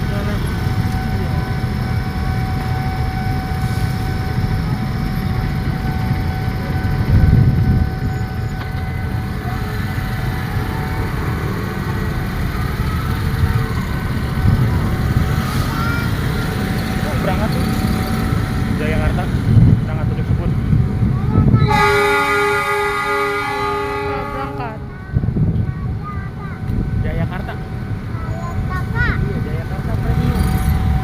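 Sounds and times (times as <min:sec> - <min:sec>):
steady high tones: 0:00.0 - 0:20.7
train rumbling: 0:00.0 - 0:31.0.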